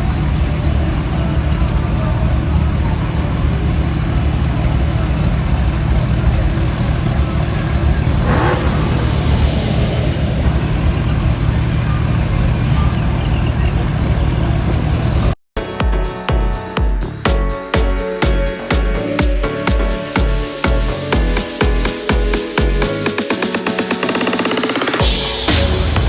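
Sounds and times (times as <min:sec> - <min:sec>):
people talking: 0:00.0 - 0:15.3
engine revving: 0:00.0 - 0:15.4
vehicle engines rumbling: 0:00.0 - 0:15.4.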